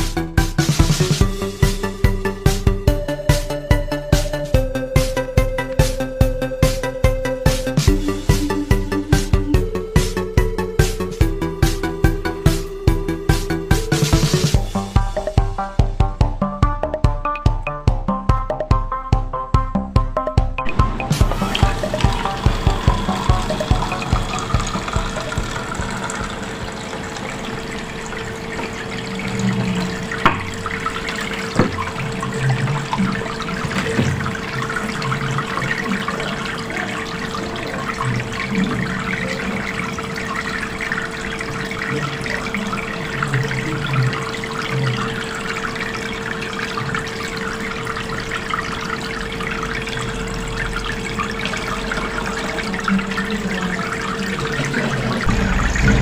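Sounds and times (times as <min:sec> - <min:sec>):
pump hum: 0:00.0 - 0:16.6, 0:20.6 - 0:56.0
water trickling and splashing: 0:20.7 - 0:56.0.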